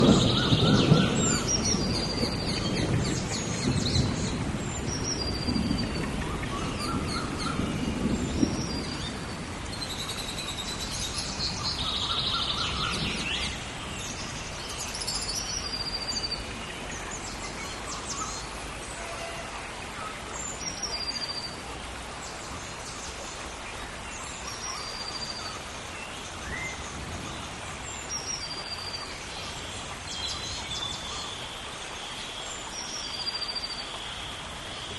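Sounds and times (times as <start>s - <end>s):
low rumble of thunder: 0.0s - 19.6s, 26.3s - 31.1s
rain hiss: 0.0s - 34.9s.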